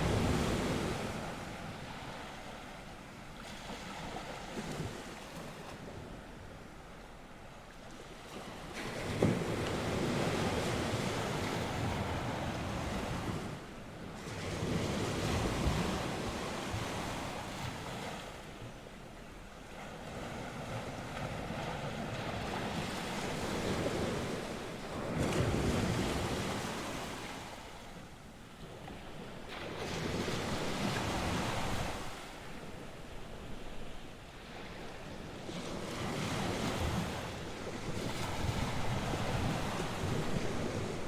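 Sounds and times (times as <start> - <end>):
waves breaking on shore: 0.0 - 41.0
wind buffeting microphone: 35.4 - 41.0.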